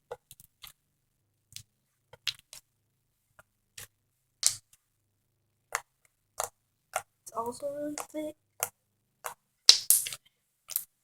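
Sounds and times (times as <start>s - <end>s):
slime squishy clicks and pops: 9.7s - 10.9s.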